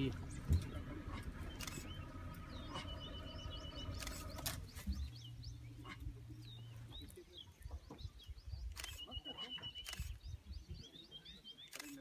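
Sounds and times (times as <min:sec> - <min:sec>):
low steady rumble: 0:00.0 - 0:08.8
small birds chirping: 0:00.0 - 0:12.0.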